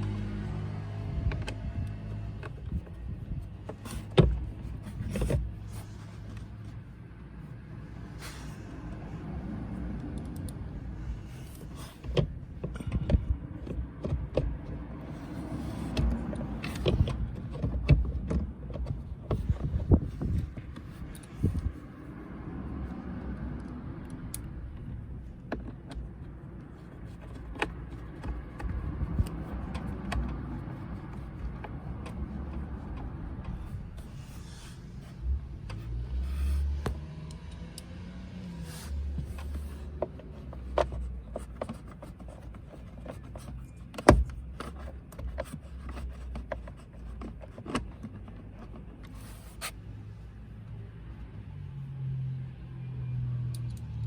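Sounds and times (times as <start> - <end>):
tools clicking and scraping plastic: 11.4 - 21.8, 23.6 - 37.9, 38.5 - 49.8.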